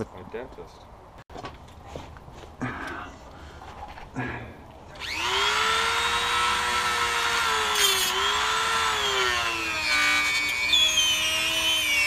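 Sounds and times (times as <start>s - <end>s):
angle grinder cutting metal: 5.0s - 12.0s.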